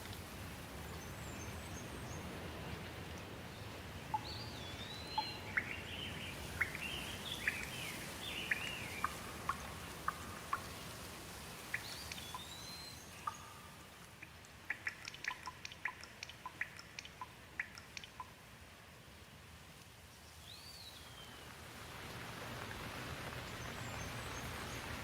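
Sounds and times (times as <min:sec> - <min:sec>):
sharp water drips plinking: 0:00.0 - 0:18.5
steady rain hiss: 0:00.0 - 0:25.0
songbird singing whistles: 0:04.1 - 0:10.6, 0:11.7 - 0:13.9, 0:20.4 - 0:21.5.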